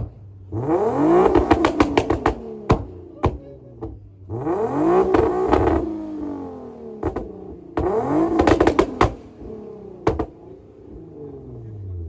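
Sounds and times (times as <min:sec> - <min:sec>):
car engine revving: 0:00.0 - 0:12.0
sharp cracks: 0:01.2 - 0:03.4, 0:07.0 - 0:09.5.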